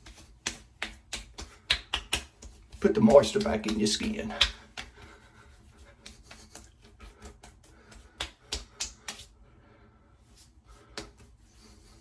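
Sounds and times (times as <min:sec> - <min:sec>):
light taps and clicks: 0:00.0 - 0:05.2.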